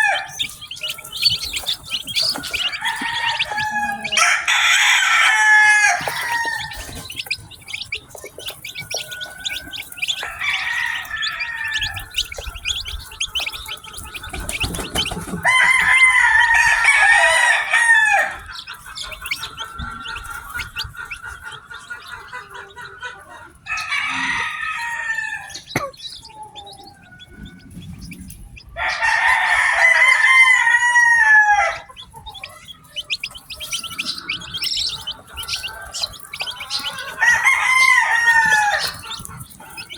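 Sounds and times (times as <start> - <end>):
rooster crowing: 0.0 - 7.4, 8.4 - 14.1, 14.9 - 19.4, 23.6 - 25.6, 28.8 - 32.4, 33.4 - 39.9
chicks peeping: 0.0 - 39.9.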